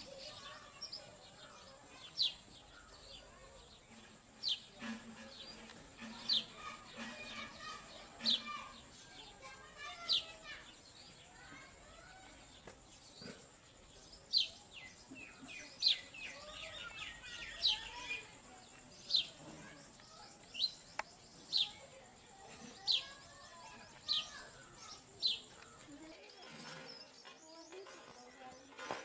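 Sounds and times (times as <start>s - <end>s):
faint bird chirping: 0.0s - 29.0s.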